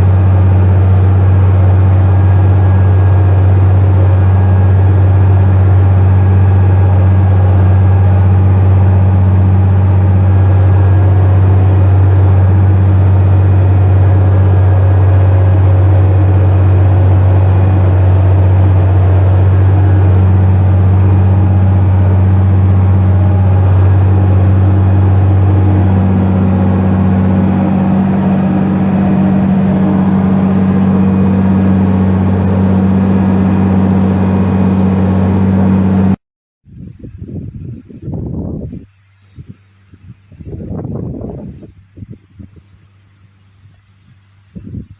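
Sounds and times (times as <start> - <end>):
tractor engine droning: 0.0 - 36.2.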